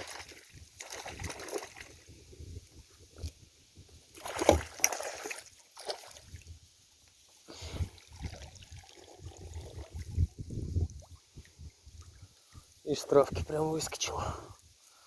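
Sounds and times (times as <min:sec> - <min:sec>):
water splashing around boat: 0:00.0 - 0:02.1, 0:04.1 - 0:06.5.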